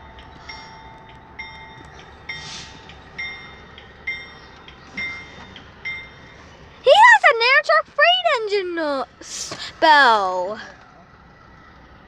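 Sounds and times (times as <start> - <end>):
railroad bell ringing: 0.0 - 8.2
short hiss: 2.4 - 2.9, 9.2 - 9.7.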